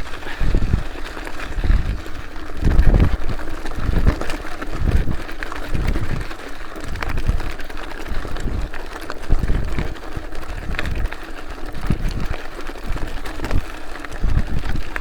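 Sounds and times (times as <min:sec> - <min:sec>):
wind gusting on microphone: 0:00.0 - 0:07.5, 0:08.1 - 0:11.1.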